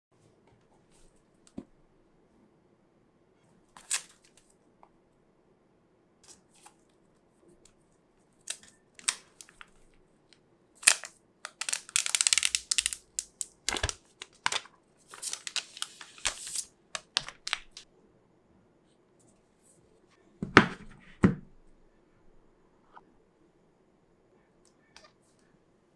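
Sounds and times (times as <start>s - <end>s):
wrapping tearing and crinkling: 3.8s - 4.4s, 8.5s - 9.9s, 10.8s - 17.8s.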